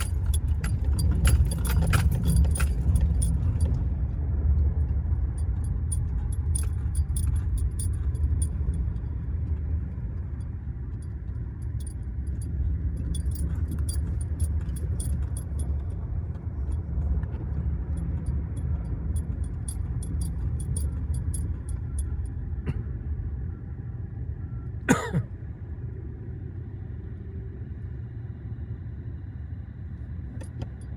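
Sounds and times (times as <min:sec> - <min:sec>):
rapid high clicking and jingling: 0:00.0 - 0:03.9, 0:05.3 - 0:22.2
car road and engine rumble: 0:00.0 - 0:30.9.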